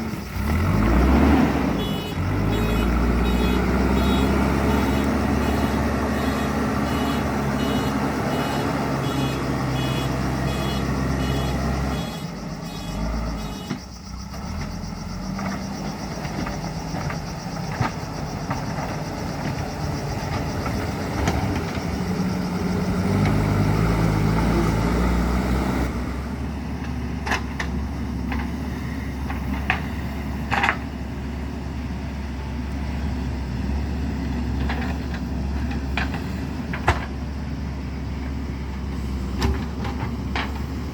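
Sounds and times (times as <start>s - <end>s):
diesel engine running: 0.0s - 40.9s
reversing alarm beeping: 1.7s - 14.0s.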